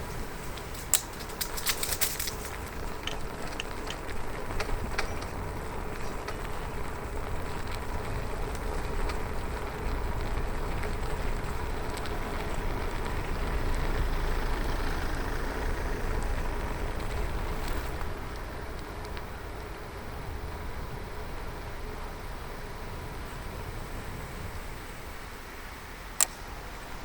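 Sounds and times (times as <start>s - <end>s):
bicycle tyre noise: 0.0s - 27.0s
faint steady hum: 0.0s - 27.0s
wind rushing over microphone: 0.0s - 27.0s
light clicks: 0.5s - 5.4s, 26.2s - 26.5s.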